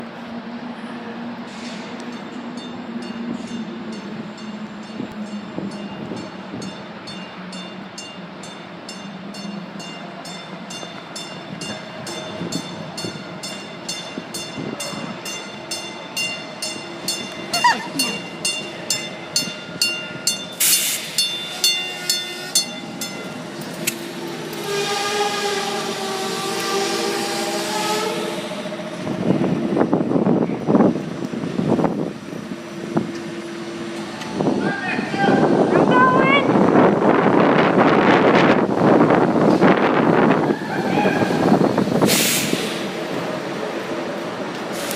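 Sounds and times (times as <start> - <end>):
light rail train on track: 0.0 - 44.9
train horn: 21.5 - 22.8, 24.3 - 29.0.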